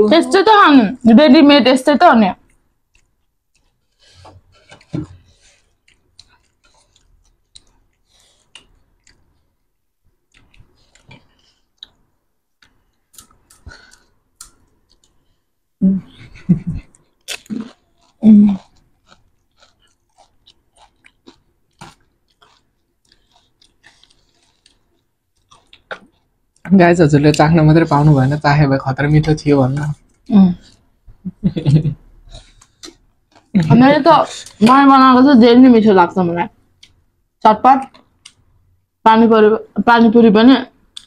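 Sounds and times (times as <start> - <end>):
person chewing crunchy snacks: 2.5 - 9.5, 10.3 - 12.0, 16.8 - 26.7, 32.2 - 34.8.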